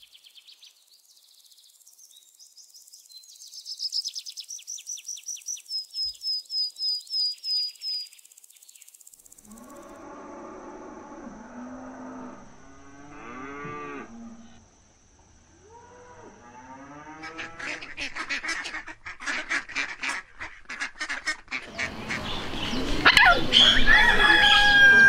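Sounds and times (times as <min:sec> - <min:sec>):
cow mooing: 0:09.5 - 0:14.6
loud bird call: 0:20.8 - 0:25.0.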